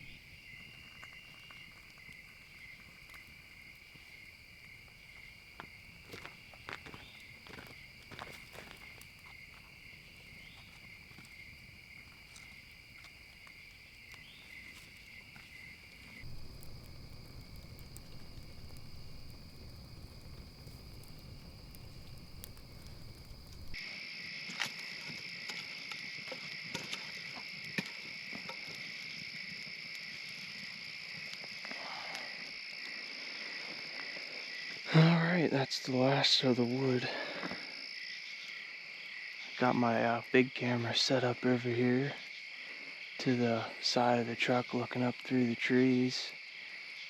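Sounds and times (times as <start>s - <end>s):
crickets chirring: 0.0s - 24.4s.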